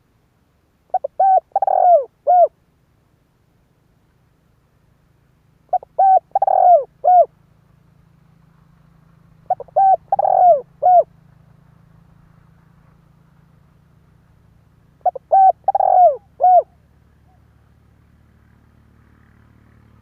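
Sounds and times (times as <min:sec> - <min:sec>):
dove cooing: 0:00.9 - 0:02.5, 0:05.7 - 0:07.3, 0:09.4 - 0:11.1, 0:15.0 - 0:17.5.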